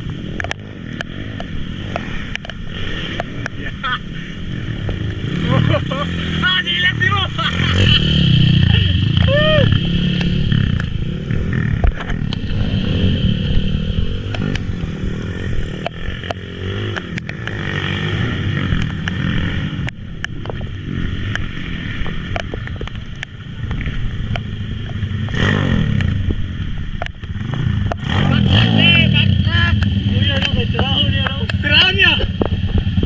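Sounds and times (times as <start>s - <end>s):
motorcycle engines revving: 0.0s - 33.0s
sharp clicks and clatter: 0.3s - 3.6s, 15.7s - 17.8s, 18.6s - 28.1s.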